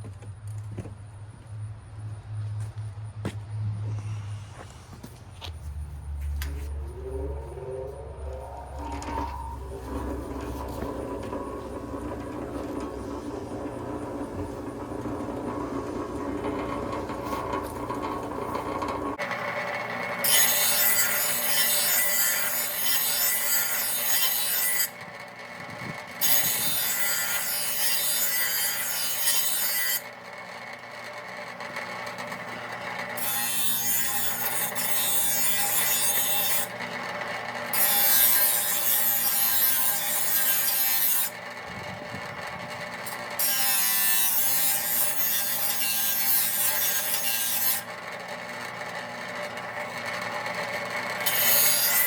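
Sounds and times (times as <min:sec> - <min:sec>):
grinder motor humming: 0:04.0 - 0:20.3
grinder grinding steel blade: 0:06.4 - 0:25.1, 0:25.8 - 0:30.2, 0:32.3 - 0:52.0.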